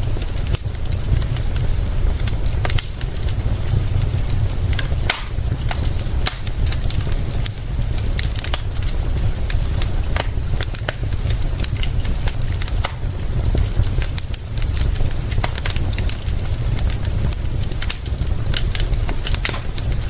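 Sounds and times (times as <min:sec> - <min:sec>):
rain hiss: 0:00.0 - 0:20.0
wood fire crackling and popping: 0:00.0 - 0:20.0
deep low rumble: 0:08.8 - 0:20.0.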